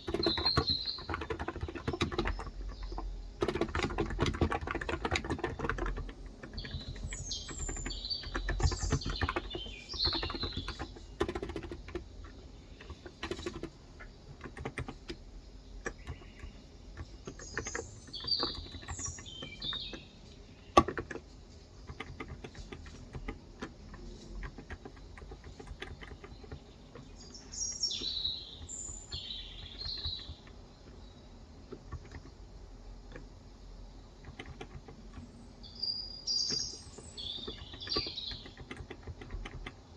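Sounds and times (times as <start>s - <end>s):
keyboard typing: 0.0s - 33.4s, 34.1s - 35.4s, 36.4s - 39.9s
birds chirping: 0.0s - 39.9s.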